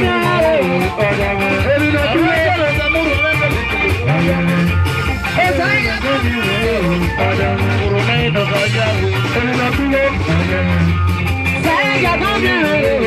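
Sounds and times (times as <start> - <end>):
bass guitar: 0.0 - 13.0
bending melodic line: 0.0 - 13.0
electric guitar: 0.0 - 13.0.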